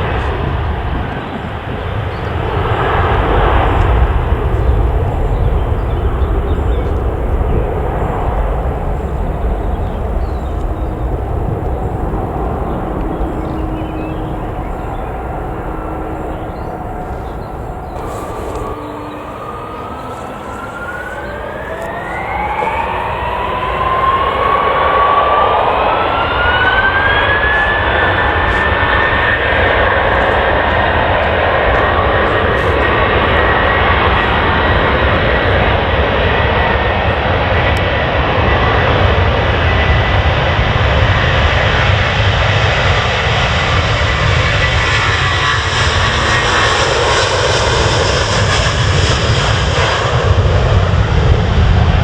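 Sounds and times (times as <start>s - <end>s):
jet engines whining: 0.0s - 52.0s
low rumble: 2.2s - 31.7s.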